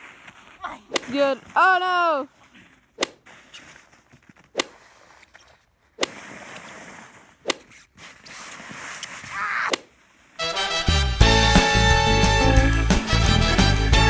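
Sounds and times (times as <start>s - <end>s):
sharp whip-like cracks: 4.6s - 4.8s, 6.0s - 6.7s.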